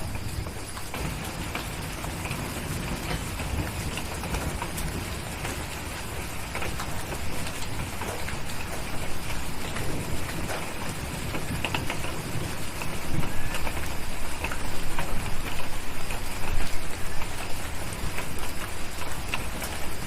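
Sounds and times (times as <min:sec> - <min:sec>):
rain pattering: 0:00.0 - 0:20.0
wood fire crackling and popping: 0:00.0 - 0:20.0.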